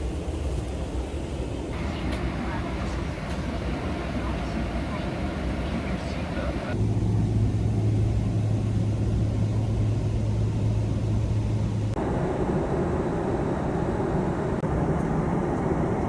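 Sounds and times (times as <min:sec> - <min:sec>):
jet engine drone: 0:01.4 - 0:16.0
airplane cabin noise rush: 0:01.7 - 0:06.8.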